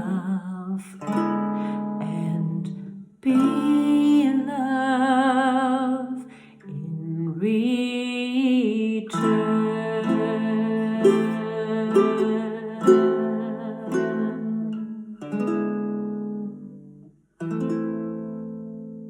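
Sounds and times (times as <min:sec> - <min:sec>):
person singing with vibrato: 0:00.0 - 0:15.4
ukulele strummed and plucked: 0:00.0 - 0:19.0
singer breathing: 0:01.5 - 0:02.0, 0:06.2 - 0:06.7.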